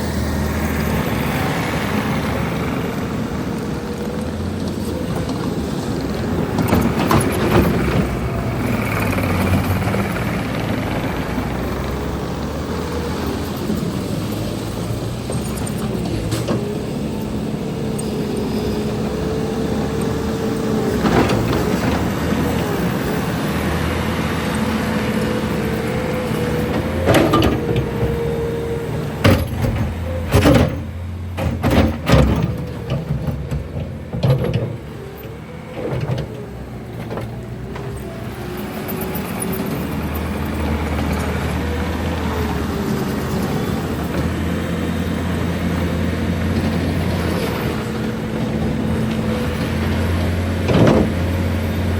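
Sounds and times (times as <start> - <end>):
diesel engine running with whine: 0.0 - 51.9
sharp knocks and clanks: 29.2 - 34.9.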